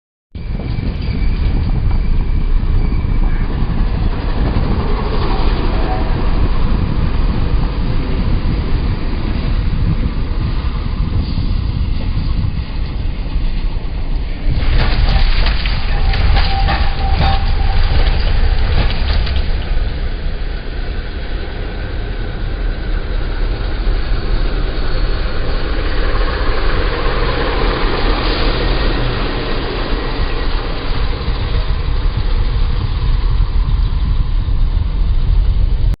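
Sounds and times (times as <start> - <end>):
heavy vehicle engine and road noise: 0.4 - 36.0
sharp knocks and rattles: 14.5 - 20.0.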